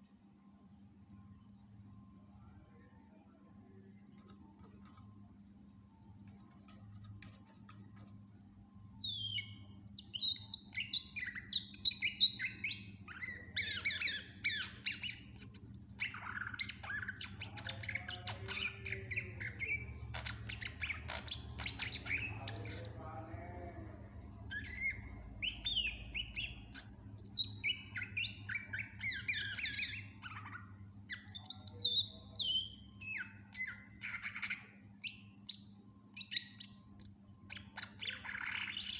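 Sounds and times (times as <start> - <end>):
low electrical hum: 0.0 - 38.9
bird singing chirps and trills: 8.9 - 23.5, 24.4 - 38.9.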